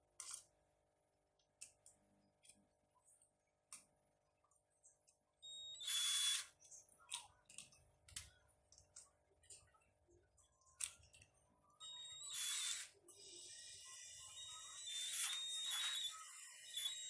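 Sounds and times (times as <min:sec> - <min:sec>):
cordless drill motor whine: 0:05.5 - 0:06.5, 0:11.8 - 0:17.0.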